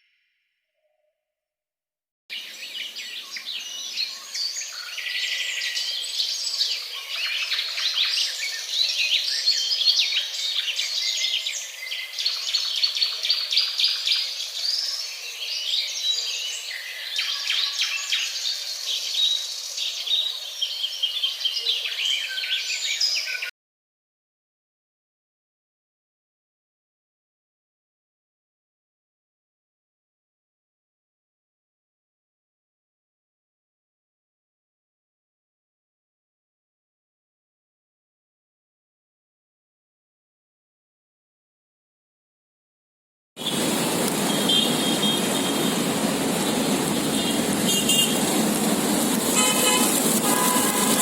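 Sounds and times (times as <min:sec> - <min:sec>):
small birds chirping: 0:43.4 - 0:51.0.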